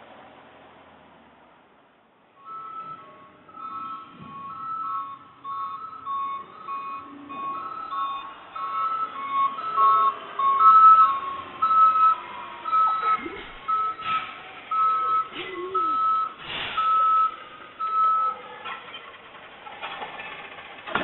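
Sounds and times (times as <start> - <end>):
truck backup alarm beeping: 2.4 - 18.5
truck knocks: 2.7 - 21.0.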